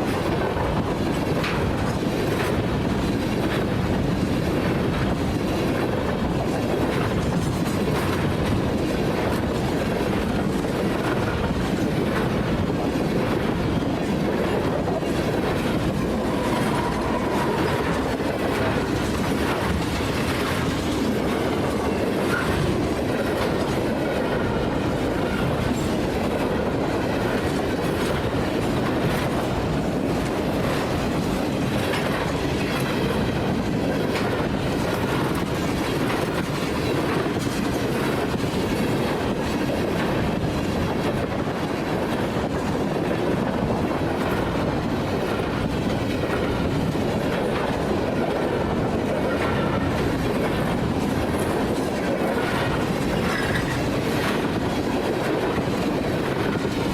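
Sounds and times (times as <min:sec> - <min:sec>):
freight train rumbling past: 0:00.0 - 0:56.9
wheels clattering over rail joints: 0:43.6 - 0:56.9.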